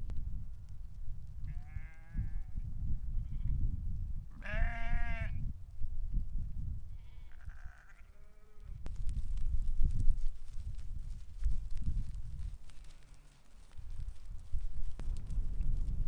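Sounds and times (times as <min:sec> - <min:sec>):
sheep bleating: 0:01.5 - 0:02.4, 0:04.4 - 0:05.3, 0:07.0 - 0:08.7.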